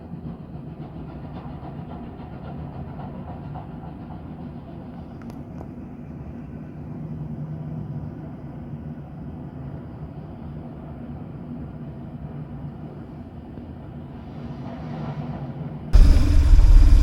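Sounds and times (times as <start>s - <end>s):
motorcycle engine running: 16.0s - 17.0s.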